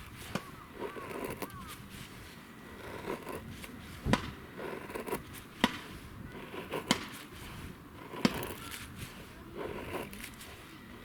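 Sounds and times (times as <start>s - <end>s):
scraping: 0.0s - 11.0s
sharp knocks: 4.0s - 4.4s.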